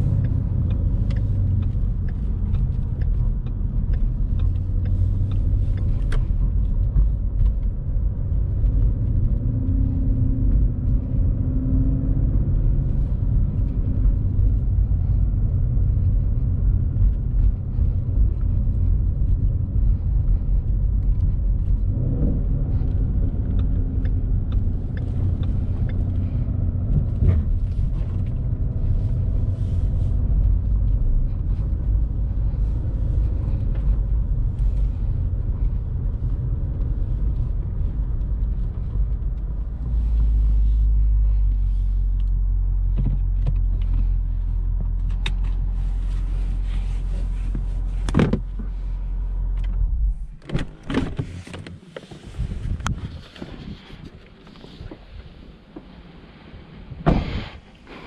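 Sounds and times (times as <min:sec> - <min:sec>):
car engine rumbling from inside cabin: 0:00.0 - 0:58.0.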